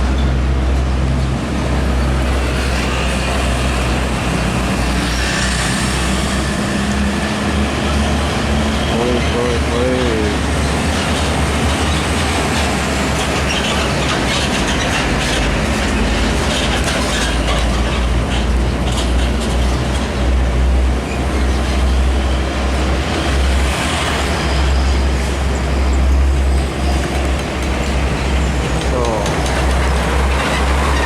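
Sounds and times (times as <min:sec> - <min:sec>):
heavy trucks rumbling past: 0:00.0 - 0:31.0
knocks and rattles from loads: 0:09.0 - 0:20.4, 0:26.4 - 0:31.0.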